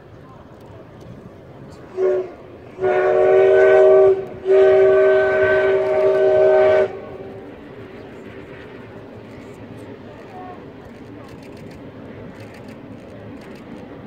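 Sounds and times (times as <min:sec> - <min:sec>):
steam locomotive whistle: 0:01.9 - 0:07.4.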